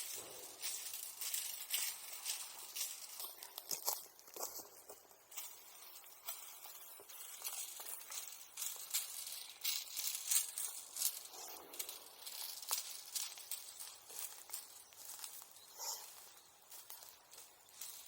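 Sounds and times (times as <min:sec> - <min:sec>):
bonfire embers crackling: 0:00.0 - 0:18.0.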